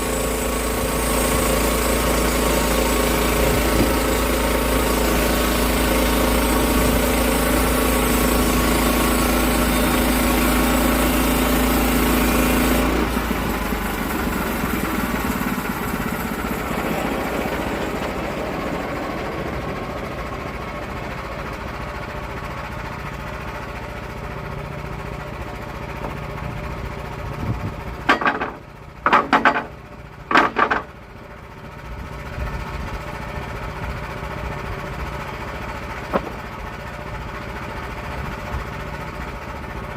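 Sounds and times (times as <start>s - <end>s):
saw blade cutting log: 0.0s - 13.3s, 28.0s - 31.0s, 36.0s - 36.5s
sawmill engine running: 0.0s - 39.9s.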